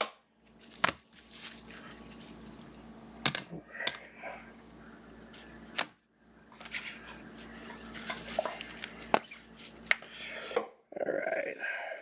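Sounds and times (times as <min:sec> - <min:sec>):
cards rustling on a table: 0:00.5 - 0:02.8.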